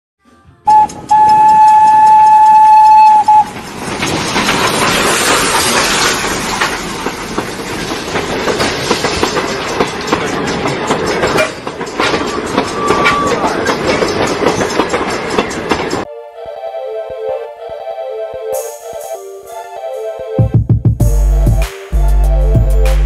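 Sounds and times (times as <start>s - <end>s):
train rumbling and clattering: 0.4s - 16.1s
train whistle blast: 0.6s - 3.5s, 12.7s - 13.6s.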